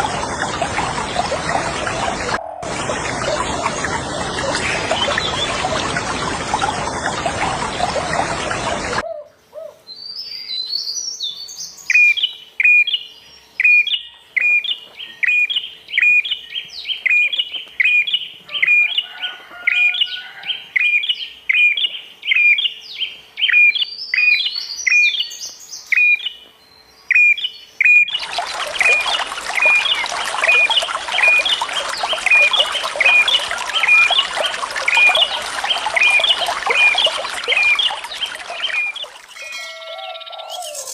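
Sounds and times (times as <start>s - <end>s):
running water rushing: 0.0s - 9.0s, 28.1s - 39.6s.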